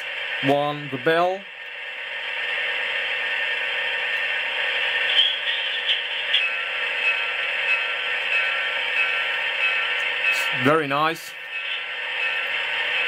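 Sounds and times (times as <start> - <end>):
locomotive bell ringing: 5.1 - 13.0.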